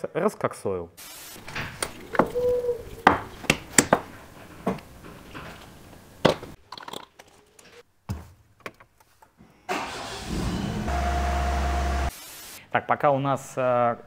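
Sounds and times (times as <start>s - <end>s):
car engine cranking and idling: 9.7s - 12.1s.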